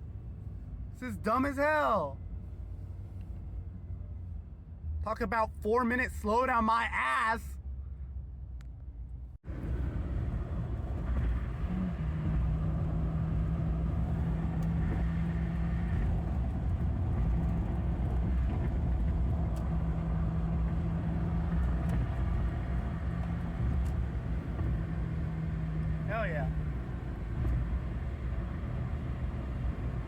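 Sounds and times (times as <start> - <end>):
road noise rumble: 0.0 - 30.0
car engine hum: 9.3 - 30.0.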